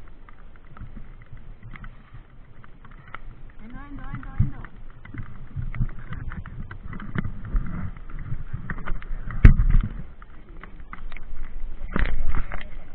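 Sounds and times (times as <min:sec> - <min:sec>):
bike rattling over rough trail: 0:00.0 - 0:12.9.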